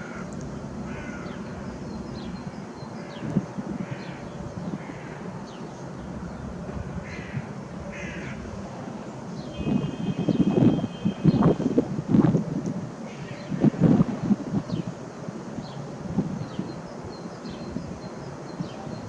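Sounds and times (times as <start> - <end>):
harsh bird calls: 0.0 - 8.5, 9.3 - 11.8.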